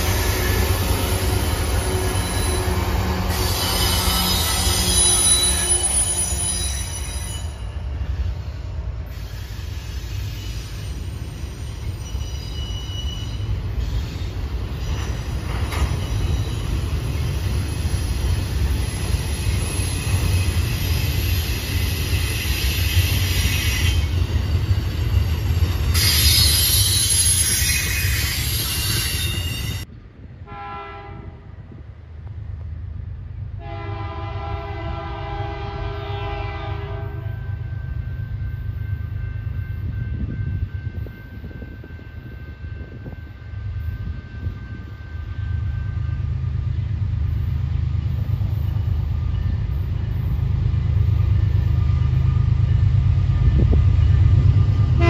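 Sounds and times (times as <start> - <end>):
high-pitched wheel squeal: 0.0 - 29.8
train wheels rumbling on rails: 0.0 - 55.0
distant train air horn: 30.5 - 31.6, 33.6 - 37.6.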